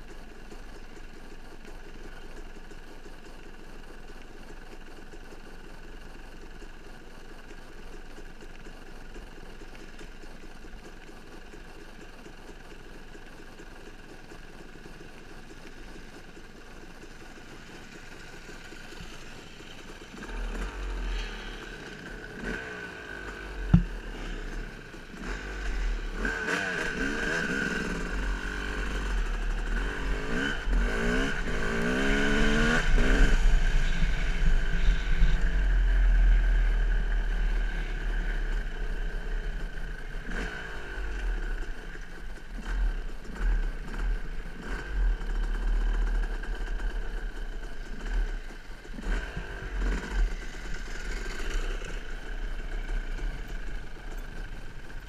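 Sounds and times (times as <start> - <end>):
dirt bike engine revving: 17.6 - 41.8, 42.5 - 55.0.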